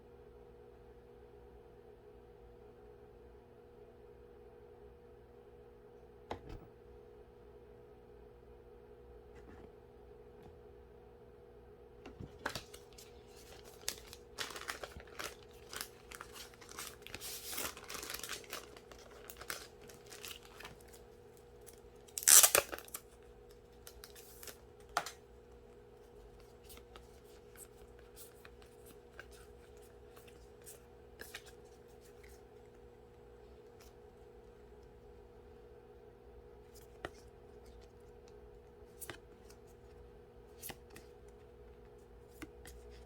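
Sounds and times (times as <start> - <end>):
packaging tearing and crinkling: 12.4 - 21.0, 21.6 - 23.2.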